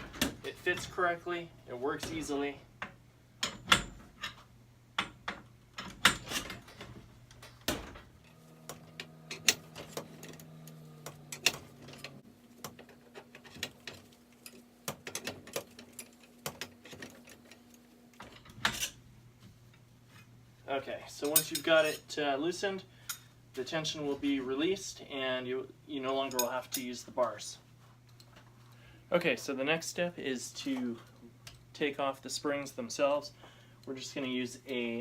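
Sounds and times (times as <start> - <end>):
metal bars clicking and knocking: 21.2 - 22.0.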